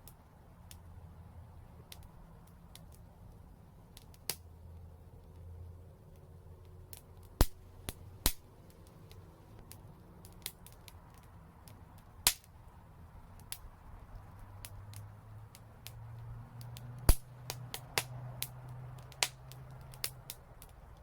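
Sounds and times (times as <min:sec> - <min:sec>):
low steady rumble: 0:00.0 - 0:21.0
wood fire crackling: 0:00.0 - 0:21.0
loud pops: 0:17.1 - 0:18.1.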